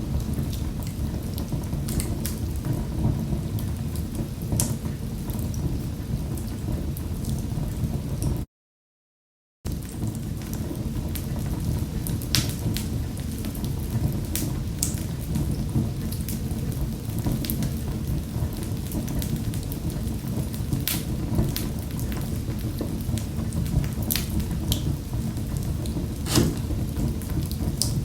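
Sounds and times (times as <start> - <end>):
wood fire crackling: 26.2 - 27.8.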